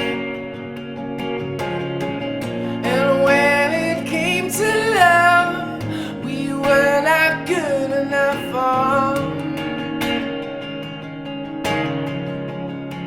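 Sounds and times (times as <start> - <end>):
guitar chords: 0.0 - 13.0
song with held sung notes: 2.5 - 10.2.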